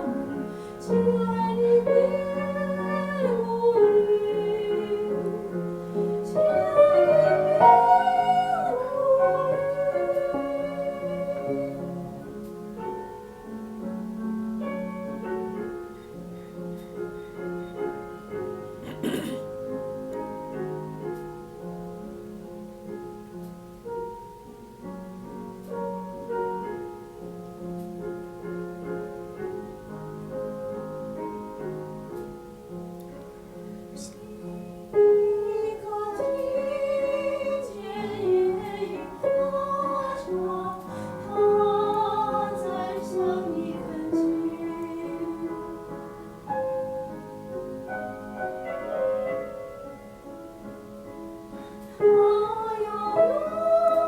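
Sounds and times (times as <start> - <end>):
woman singing soprano: 0.0 - 12.2, 33.9 - 46.1, 52.0 - 54.0
piano accompaniment: 0.0 - 54.0.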